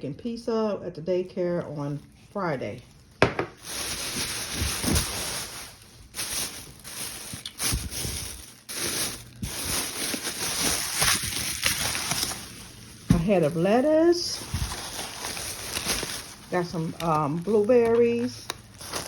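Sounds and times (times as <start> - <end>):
plastic bags rustling: 1.6 - 19.0.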